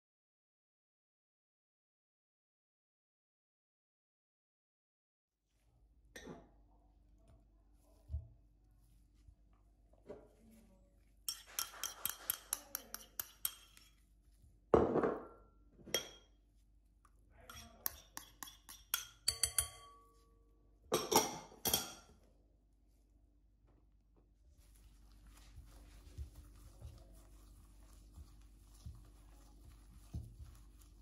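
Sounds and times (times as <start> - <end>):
dishes clinking and clattering: 17.5 - 20.1, 20.9 - 22.1.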